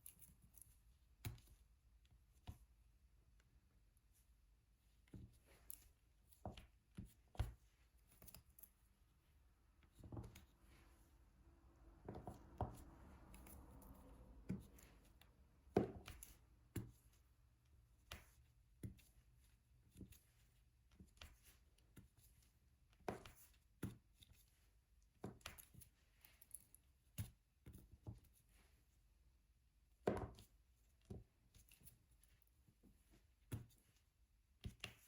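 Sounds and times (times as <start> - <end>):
soft rustle: 3.9 - 23.6, 25.6 - 29.2.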